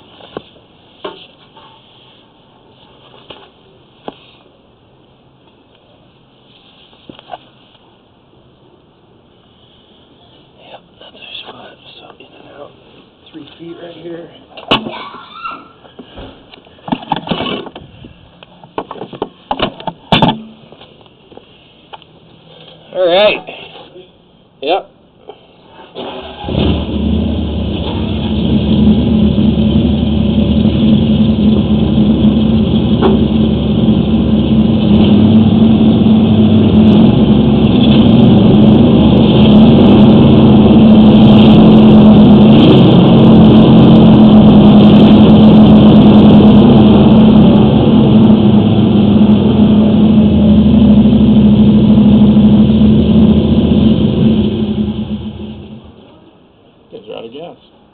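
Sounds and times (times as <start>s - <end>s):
gas engine running under load: 29.0s - 56.0s.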